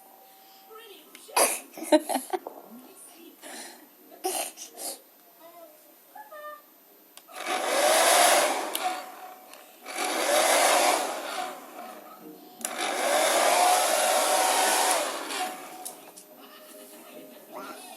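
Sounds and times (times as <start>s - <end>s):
hair dryer blowing: 7.4s - 12.0s, 12.6s - 16.0s.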